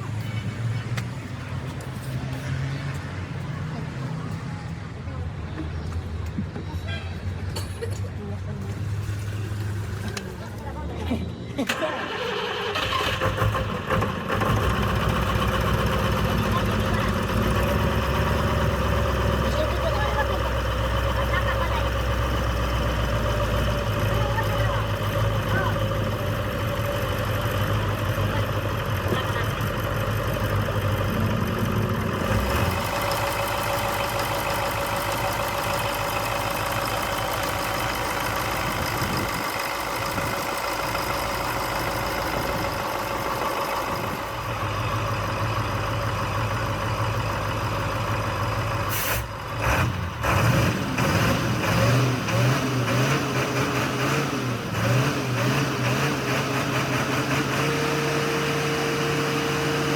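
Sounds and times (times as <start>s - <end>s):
engine idling: 11.7s - 50.3s.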